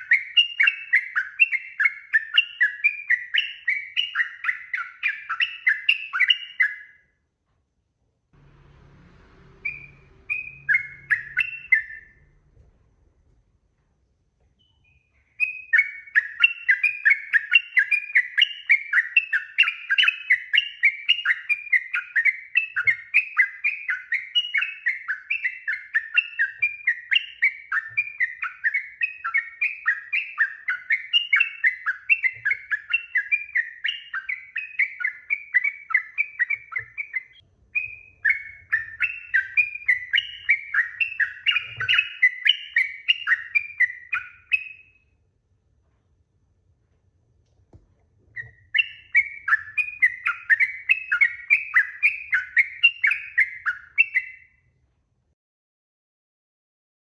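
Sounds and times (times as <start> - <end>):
bird chattering song: 0.0 - 7.0, 9.6 - 12.3, 14.6 - 45.0, 48.4 - 54.6.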